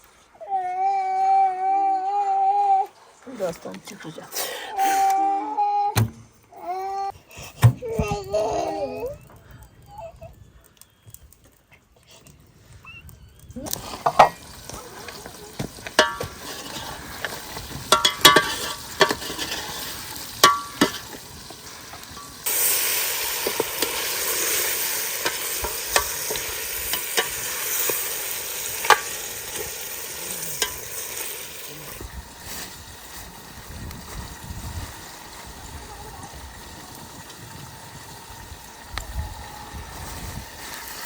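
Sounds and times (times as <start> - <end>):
food sizzling in hot fat: 12.9 - 41.0
metal utensil clinking on pan: 16.0 - 16.9, 17.9 - 19.7, 20.4 - 21.2, 25.2 - 28.0.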